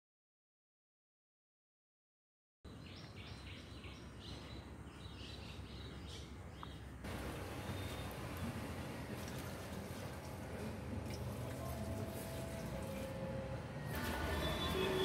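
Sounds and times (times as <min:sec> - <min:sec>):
birds chirping: 0:02.7 - 0:09.8.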